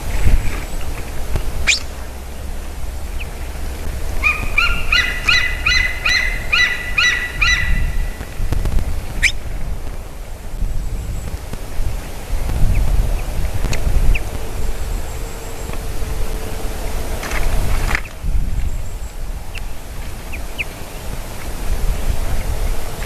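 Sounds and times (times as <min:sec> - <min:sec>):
sharp rising bird chirp: 0:00.0 - 0:08.4
low rumble: 0:00.0 - 0:23.0
bird calling rapid pitched notes: 0:01.3 - 0:08.4, 0:09.2 - 0:09.4.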